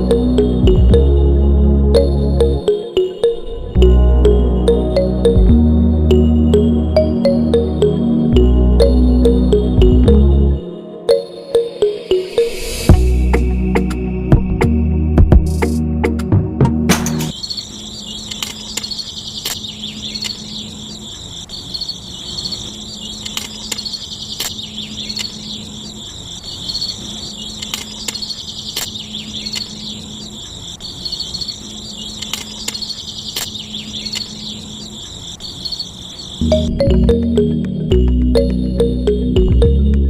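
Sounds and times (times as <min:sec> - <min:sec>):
crickets trilling: 0:17.3 - 0:36.6
sharp clicks: 0:18.3 - 0:19.6, 0:23.2 - 0:25.4, 0:27.6 - 0:29.8, 0:32.2 - 0:34.3.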